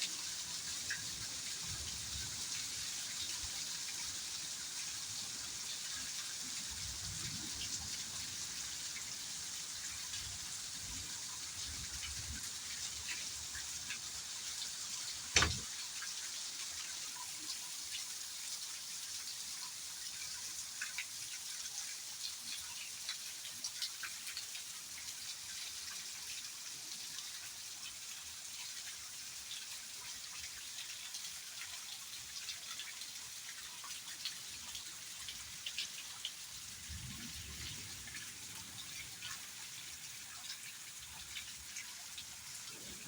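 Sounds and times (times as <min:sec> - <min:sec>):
steady rain: 0:00.0 - 0:43.0
loud drop or knock: 0:15.4 - 0:15.6.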